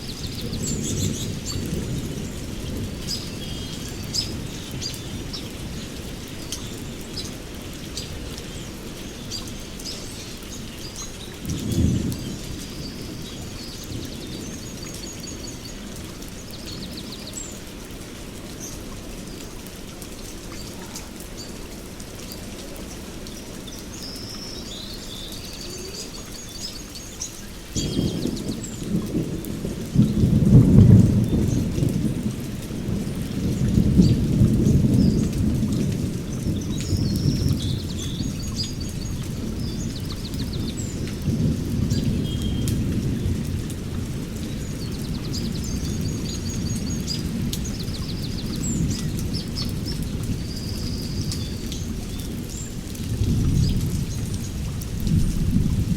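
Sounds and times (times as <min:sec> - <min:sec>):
heavy rain: 0:00.0 - 0:55.9
thunder rumbling: 0:11.3 - 0:14.8, 0:27.7 - 0:55.9.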